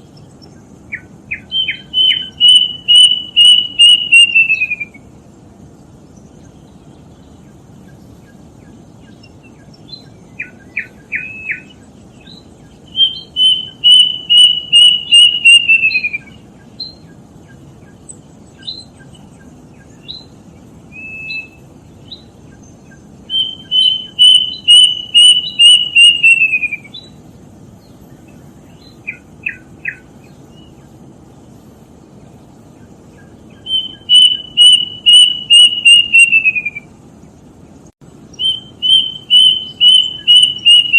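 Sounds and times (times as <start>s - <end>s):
bird chirps: 0.0s - 5.1s, 5.8s - 40.9s
cuckoo whistling: 0.9s - 5.0s, 10.4s - 17.0s, 20.9s - 21.6s, 23.3s - 27.1s, 33.6s - 36.9s, 38.4s - 40.9s.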